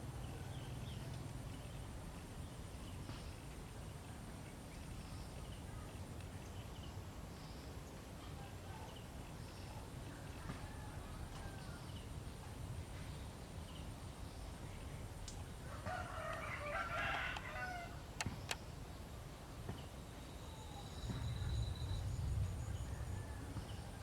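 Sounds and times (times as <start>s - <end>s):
rooster crowing: 15.7s - 18.0s
sharp clicks: 18.2s - 18.6s.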